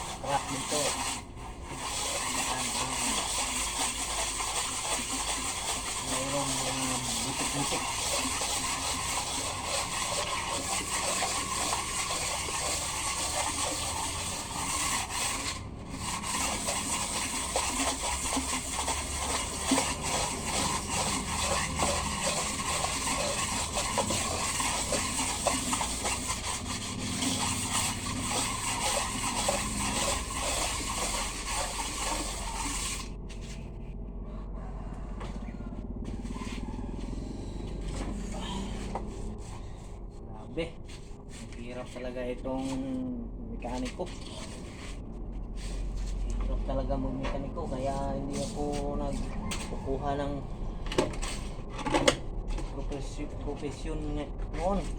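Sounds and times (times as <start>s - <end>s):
sandpaper rasping on metal: 0.0s - 33.6s, 47.5s - 49.2s
low hum: 29.6s - 41.5s.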